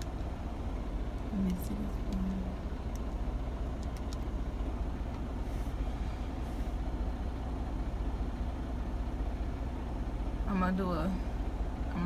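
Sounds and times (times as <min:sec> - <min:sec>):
diesel truck engine idling: 0:00.0 - 0:12.0
light clicks: 0:03.8 - 0:04.3.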